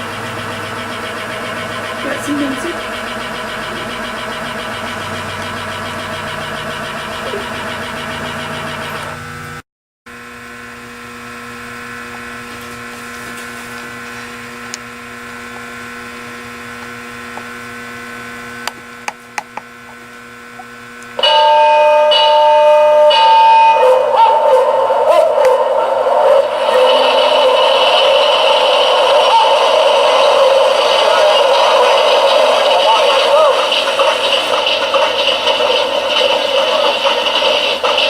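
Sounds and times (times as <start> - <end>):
electric motors humming: 0.0 - 9.6, 10.6 - 38.0
loud music: 23.1 - 38.0.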